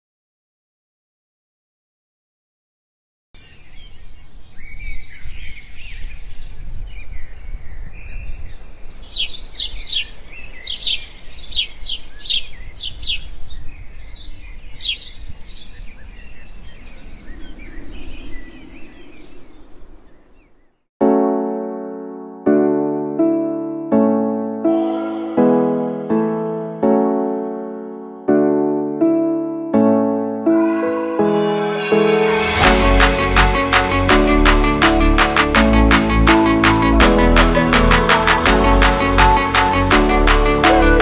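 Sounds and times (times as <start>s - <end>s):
birds chirping: 3.4s - 20.9s
downward-sweeping bird calls: 7.1s - 20.8s
electric piano music: 21.0s - 41.0s.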